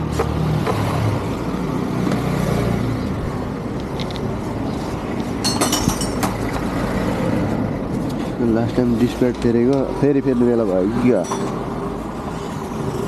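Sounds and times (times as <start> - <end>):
light metallic clinks: 5.4 - 6.3.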